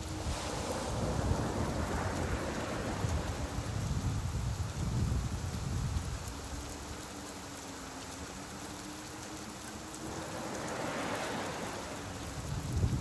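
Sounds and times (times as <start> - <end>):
steady rain: 0.0 - 13.0.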